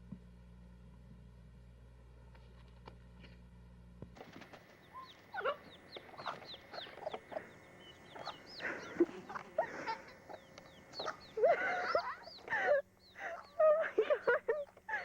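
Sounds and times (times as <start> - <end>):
faint steady hum: 0.0 - 15.0
chickens clucking and chirping: 4.2 - 15.0.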